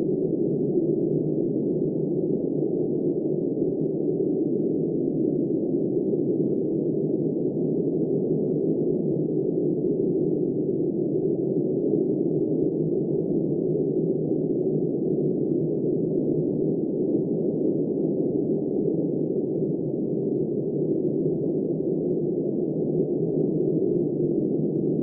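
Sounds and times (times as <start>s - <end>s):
muffled blizzard wind: 0.0s - 25.0s.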